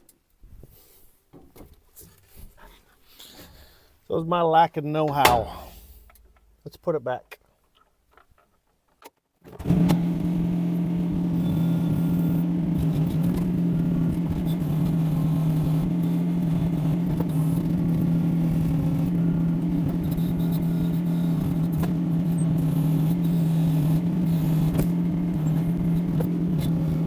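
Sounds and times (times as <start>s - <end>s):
excavator diesel engine running: 9.6s - 27.0s.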